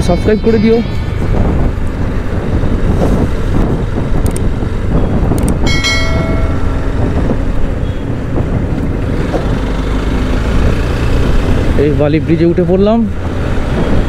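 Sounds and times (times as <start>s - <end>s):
road rumble: 0.0s - 14.0s
wind buffeting microphone: 0.0s - 14.0s
motorcycle engine: 0.8s - 12.0s.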